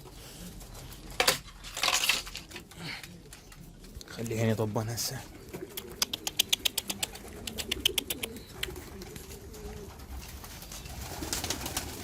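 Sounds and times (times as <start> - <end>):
pigeons cooing: 2.3 - 12.0
rapid sharp clicks: 5.8 - 8.8.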